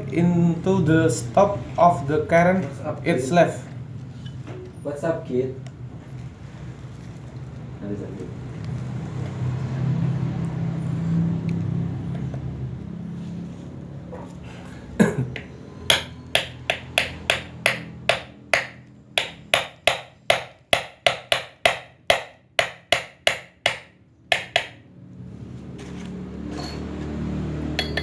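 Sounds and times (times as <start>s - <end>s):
hammer tapping on metal: 15.4s - 24.8s, 27.8s - 28.0s.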